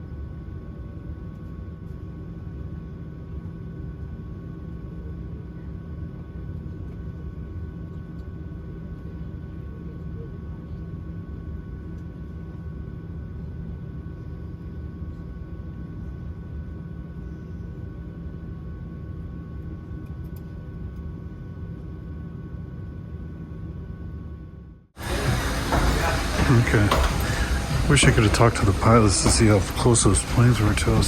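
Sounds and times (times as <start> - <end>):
airplane cabin rumble: 25.0 - 31.0
jet engine whining tones: 25.0 - 31.0.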